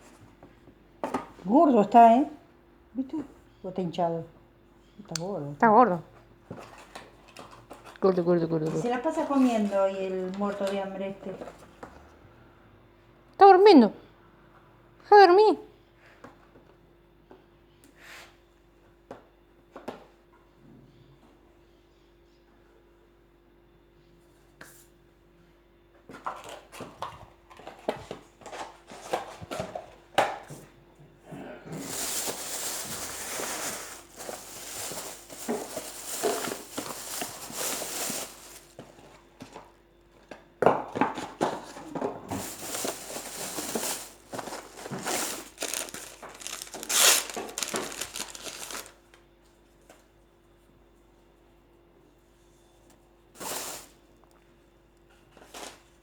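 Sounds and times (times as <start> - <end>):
wrappings rustling and crinkling: 31.8 - 39.0, 42.3 - 49.1
tearing noise: 42.6 - 49.0.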